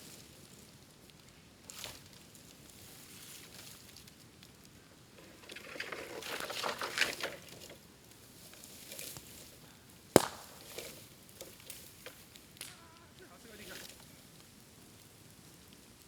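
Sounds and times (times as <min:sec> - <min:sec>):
bamboo fire crackling: 0:00.0 - 0:16.0
bamboo bursting with loud pop: 0:10.1 - 0:11.0, 0:12.5 - 0:12.8.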